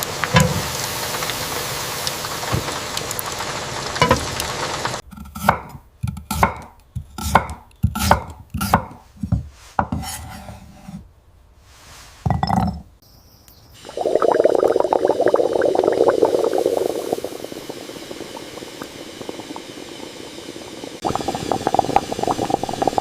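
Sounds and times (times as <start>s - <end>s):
steady rain hiss: 0.0s - 5.0s, 13.8s - 23.0s
knife chopping on cutting board: 5.3s - 10.2s.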